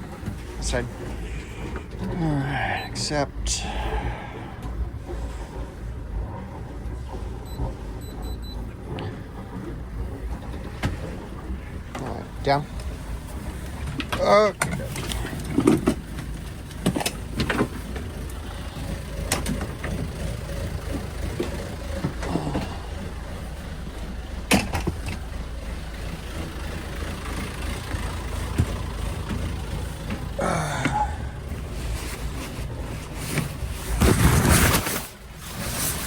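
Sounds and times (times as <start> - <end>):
boat engine idling: 0.0 - 36.0
sharp clicks and knocks: 13.7 - 18.4, 19.2 - 20.1, 24.5 - 25.3.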